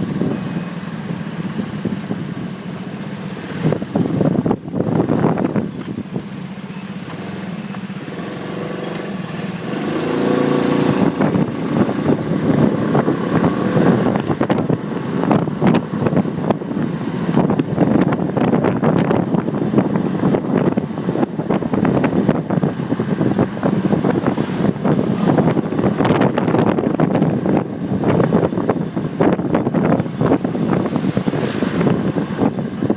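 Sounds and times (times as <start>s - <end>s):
motorcycle engine revving: 0.0s - 32.9s
wind buffeting microphone: 3.4s - 6.4s, 8.0s - 32.9s.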